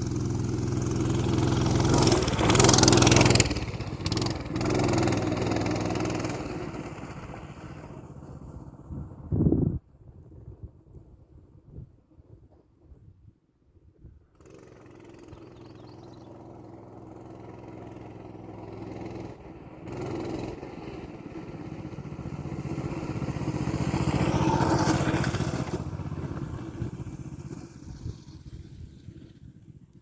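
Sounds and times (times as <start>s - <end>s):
mini bike engine running: 0.0s - 9.3s, 14.4s - 30.0s.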